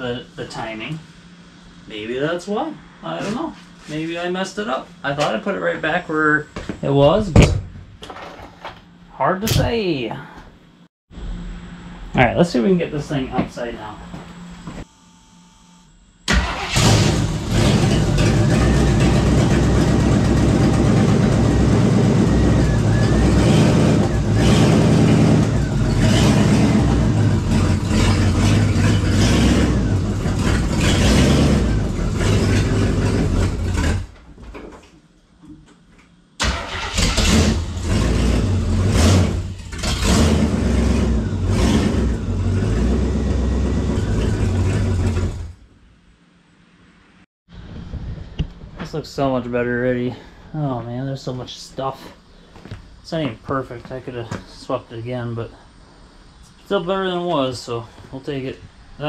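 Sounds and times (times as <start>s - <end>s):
car engine revving: 16.3s - 34.1s, 36.4s - 45.6s.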